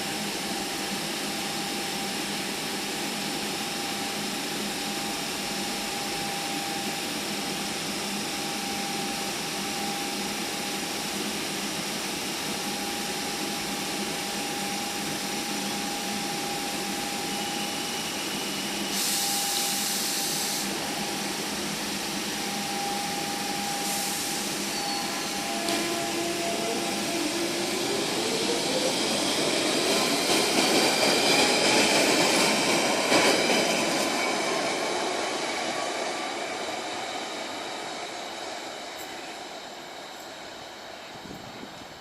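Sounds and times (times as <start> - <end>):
train equipment humming: 0.0 - 42.0
train motor whine rising: 12.6 - 40.7
short bursts of hiss: 18.8 - 20.8.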